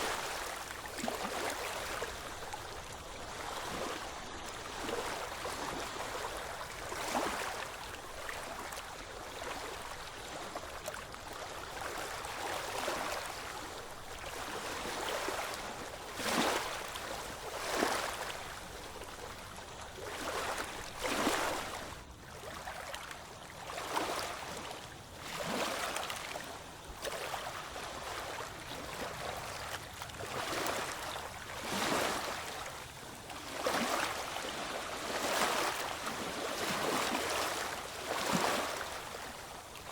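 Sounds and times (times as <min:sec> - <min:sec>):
water splashes: 0:00.0 - 0:13.4, 0:25.2 - 0:39.9.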